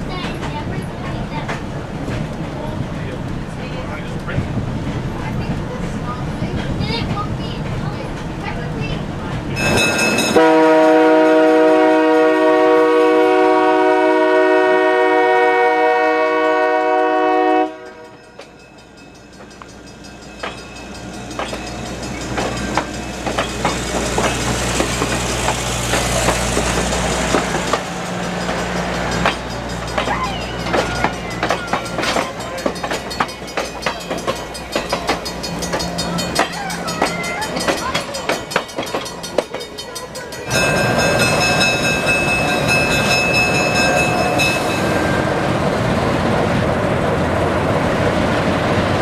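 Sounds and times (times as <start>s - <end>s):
wheels clicking over rail joints: 0.0s - 10.5s, 17.8s - 49.0s
train rumbling: 0.0s - 49.0s
train horn blast: 10.3s - 18.3s.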